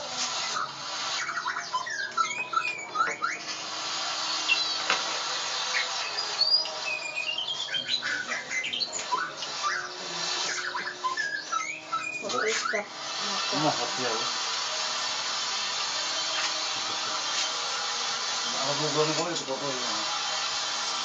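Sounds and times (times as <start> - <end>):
songbird whistling and chirping: 0.5 - 3.6, 4.4 - 5.0, 5.6 - 12.9.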